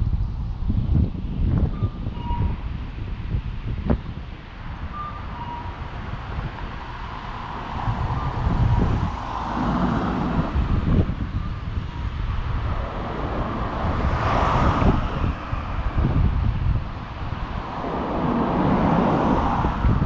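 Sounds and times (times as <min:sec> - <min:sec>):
street traffic rumble: 0:00.0 - 0:20.0
wind buffeting microphone: 0:00.0 - 0:20.0
vehicle passing close: 0:06.2 - 0:20.0.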